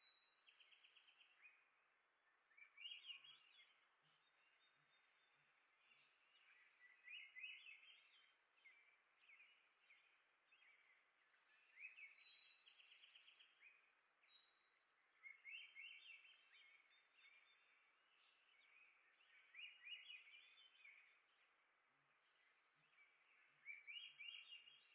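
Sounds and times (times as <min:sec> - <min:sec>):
songbirds chirping and trilling: 0:00.0 - 0:24.9
steady outdoor hiss: 0:00.0 - 0:24.9.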